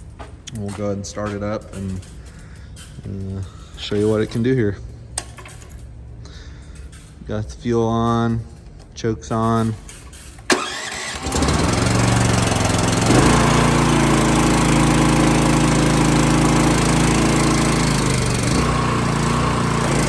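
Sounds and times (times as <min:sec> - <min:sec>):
engine cranking and running: 0:10.4 - 0:20.0
engine starter click: 0:10.5 - 0:13.5.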